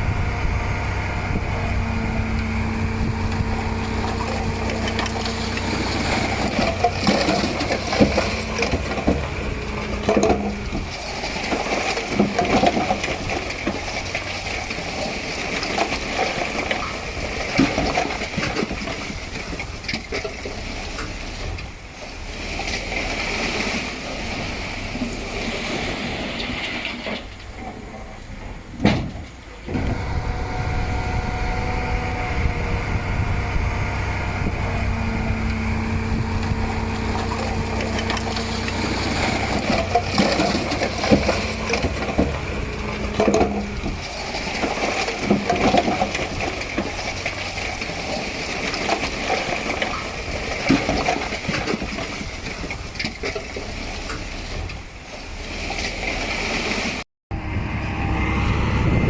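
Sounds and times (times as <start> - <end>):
steady whine: 0.0 - 12.9, 29.7 - 45.8
heavy diesel machinery running: 0.0 - 19.8, 20.5 - 52.4, 55.4 - 59.0
metallic clanks and rattles: 36.1 - 47.8.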